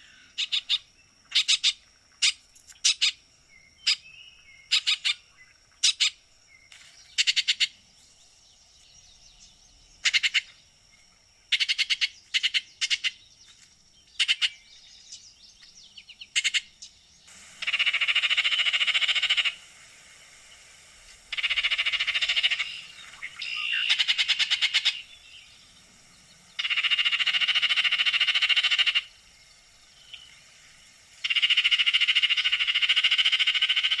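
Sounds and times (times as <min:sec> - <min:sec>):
bird chatter calls and rattles: 0:00.4 - 0:03.2, 0:21.3 - 0:34.0.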